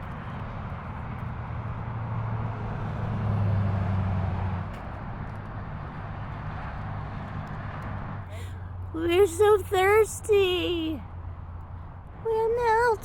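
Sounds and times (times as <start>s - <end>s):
traffic noise: 0.0s - 13.0s
vehicle driving past: 0.6s - 8.9s.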